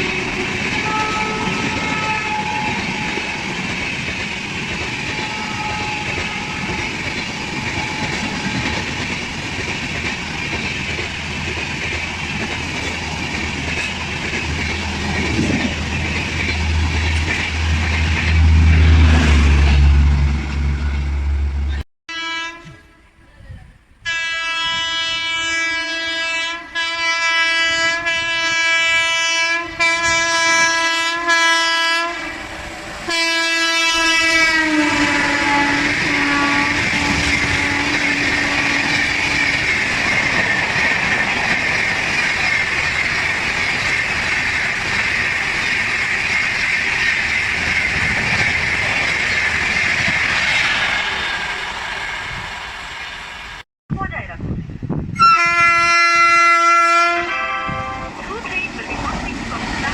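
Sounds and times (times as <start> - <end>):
locomotive horn blasts: 0.0 - 3.2, 5.1 - 8.8, 18.3 - 23.0, 24.0 - 32.4, 33.1 - 39.1, 55.2 - 58.2
train wheels clattering: 0.0 - 19.3, 34.9 - 53.5
train rushing past: 0.0 - 59.9.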